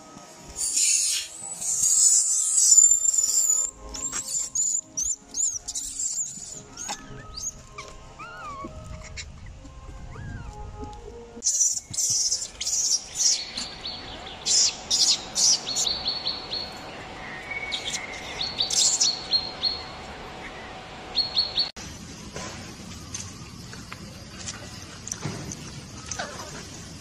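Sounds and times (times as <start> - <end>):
birds chirping: 0.6 - 10.8, 11.4 - 21.8.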